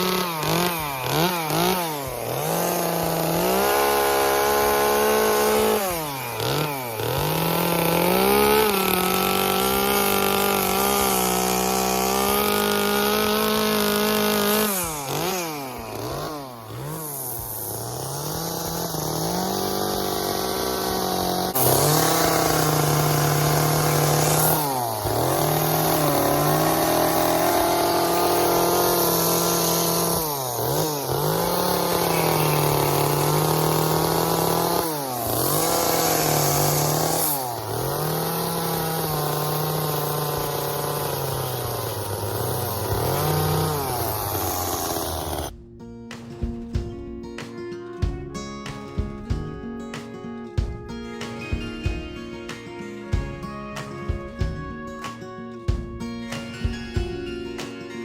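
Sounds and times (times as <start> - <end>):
chainsaw revving while cutting wood: 0.0 - 45.5.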